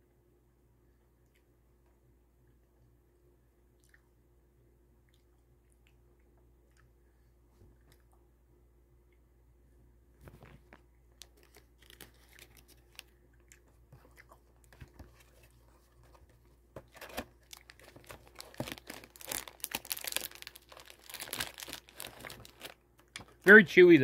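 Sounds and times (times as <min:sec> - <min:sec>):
chewing gummy candy: 0:03.7 - 0:04.2, 0:11.1 - 0:15.6, 0:17.4 - 0:23.2
plastic packaging crinkling: 0:10.3 - 0:13.2, 0:16.9 - 0:23.4.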